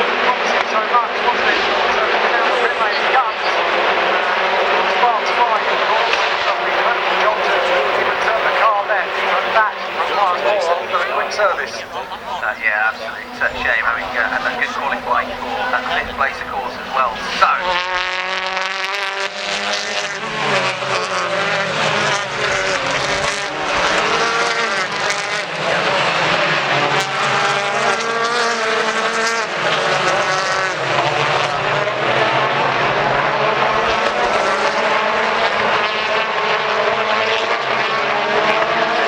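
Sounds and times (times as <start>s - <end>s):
racing car engines at high revs: 0.0s - 39.0s.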